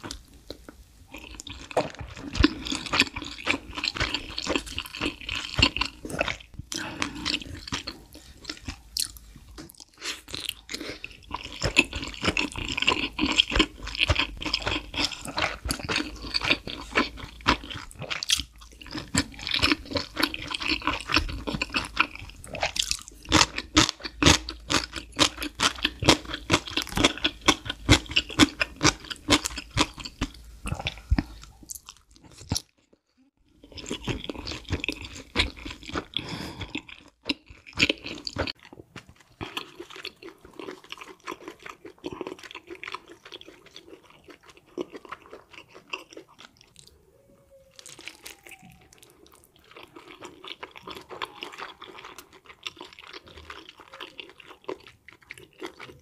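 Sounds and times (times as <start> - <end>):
wet chewing: 0.0 - 32.9, 33.6 - 47.0, 47.6 - 56.0.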